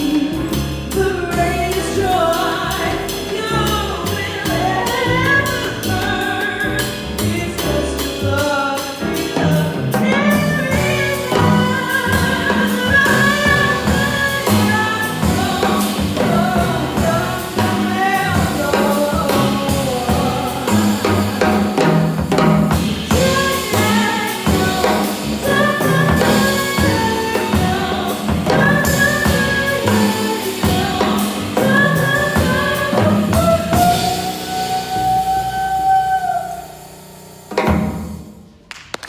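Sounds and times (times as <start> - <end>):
person singing jazz: 0.0 - 36.9
jazz band with drum kit: 0.0 - 38.7.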